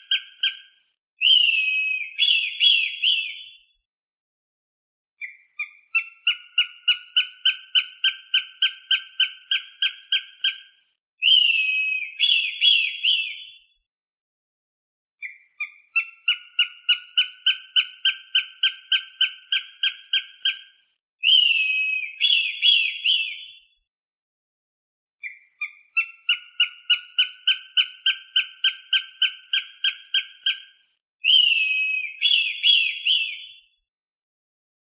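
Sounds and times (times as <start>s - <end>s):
hawk calls: 1.2s - 3.4s, 5.6s - 10.6s, 11.2s - 13.4s, 15.6s - 23.4s, 25.6s - 33.4s.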